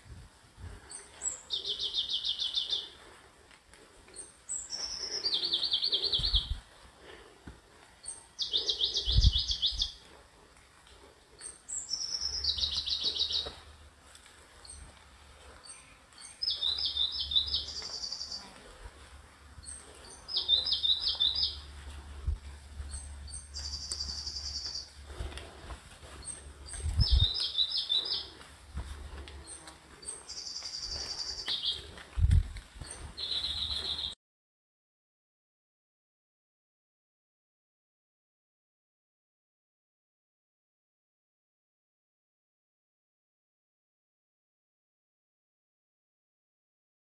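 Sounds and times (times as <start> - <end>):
songbird singing a trill: 0.9 - 3.0, 4.2 - 6.6, 8.0 - 10.0, 11.4 - 13.6, 15.7 - 18.5, 19.6 - 21.7, 22.8 - 25.0, 26.2 - 28.3, 29.4 - 31.8, 32.8 - 34.2.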